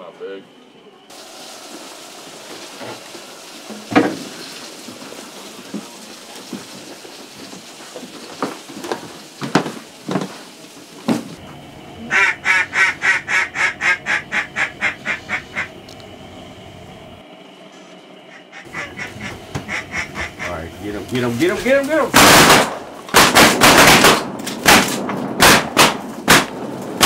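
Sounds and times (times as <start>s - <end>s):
duck quacking: 12.1s - 15.7s, 18.3s - 20.7s.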